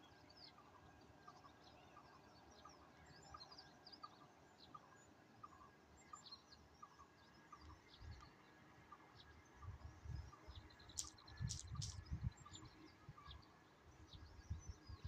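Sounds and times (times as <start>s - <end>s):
small birds chirping: 9.2s - 15.0s.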